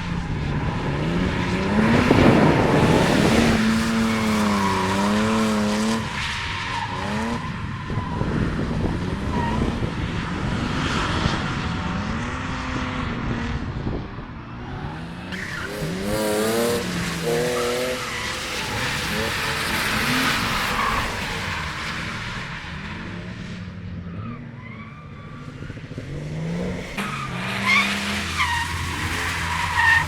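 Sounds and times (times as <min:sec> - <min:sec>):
car engine revving: 0:00.3 - 0:06.2, 0:14.6 - 0:23.6, 0:24.7 - 0:30.0.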